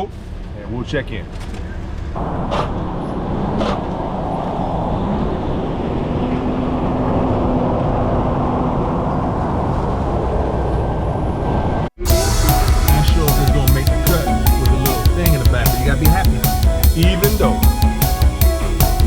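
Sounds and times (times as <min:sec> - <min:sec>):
vehicle engine and tyre rumble: 0:00.0 - 0:11.9.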